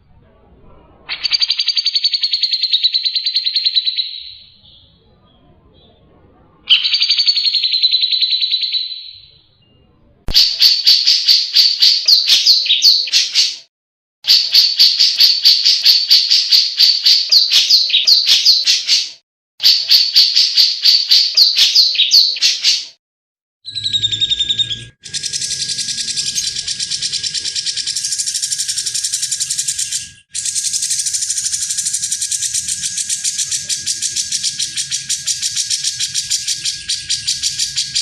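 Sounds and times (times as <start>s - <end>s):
bird chattering song: 1.1s - 6.0s, 6.7s - 13.7s, 14.3s - 22.9s, 23.7s - 38.0s
bulbul calling: 10.3s - 13.6s, 14.3s - 22.9s, 23.7s - 38.0s.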